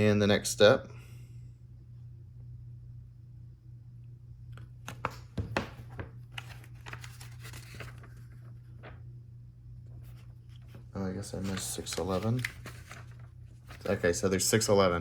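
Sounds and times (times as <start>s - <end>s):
steady low hum: 0.0s - 15.0s
hands rustling paper or plastic: 5.6s - 9.0s, 10.1s - 14.2s.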